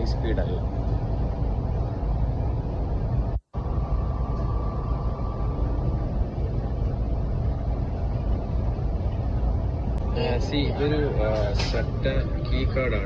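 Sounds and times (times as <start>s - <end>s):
faint thin whine: 0.0s - 13.0s
train rumble inside car: 0.0s - 13.0s.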